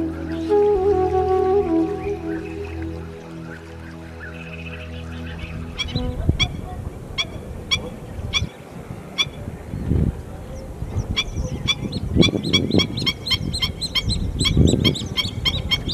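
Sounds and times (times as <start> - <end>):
low rumbles: 0.0 - 8.3
birds calling: 0.0 - 9.5, 10.5 - 15.9.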